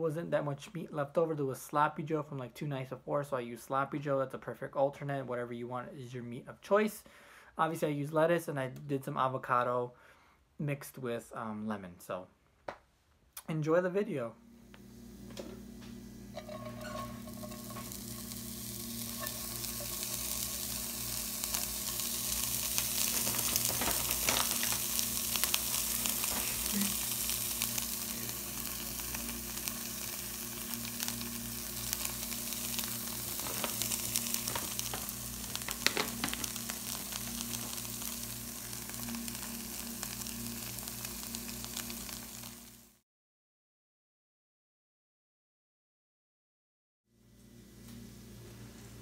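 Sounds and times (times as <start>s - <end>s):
cheese sizzling in frying pan: 14.7s - 43.0s
sharp crackles: 15.8s - 42.9s.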